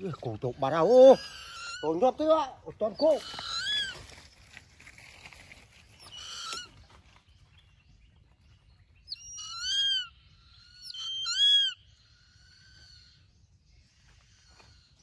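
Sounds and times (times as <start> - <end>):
bird calling: 0.0 - 7.2, 8.9 - 13.4.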